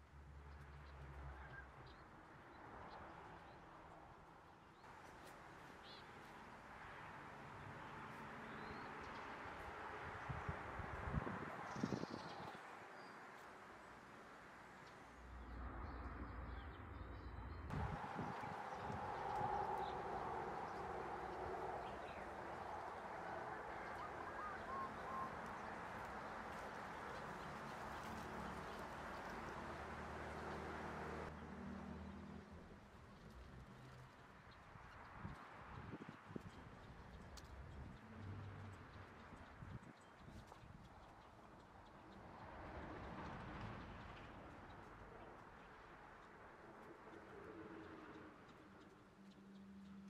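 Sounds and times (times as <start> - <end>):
steady outdoor hiss: 0.0 - 50.0
birds calling: 16.4 - 30.6.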